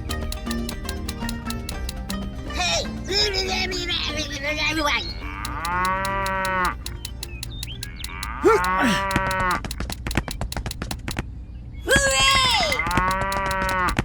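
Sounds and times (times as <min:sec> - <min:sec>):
rapid even clicking: 0:00.0 - 0:11.3, 0:11.9 - 0:14.0
cow mooing: 0:08.2 - 0:09.6.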